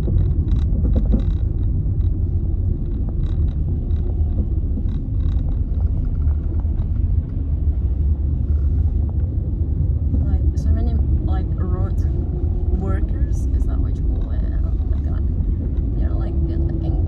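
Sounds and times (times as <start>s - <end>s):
car interior road rumble: 0.0s - 17.0s.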